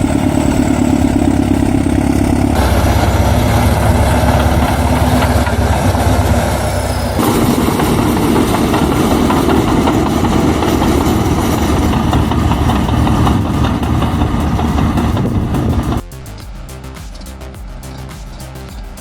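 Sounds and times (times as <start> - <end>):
heavy equipment diesel engine: 0.0 - 18.7
track and machine noise: 0.0 - 19.0
background music: 7.2 - 19.0.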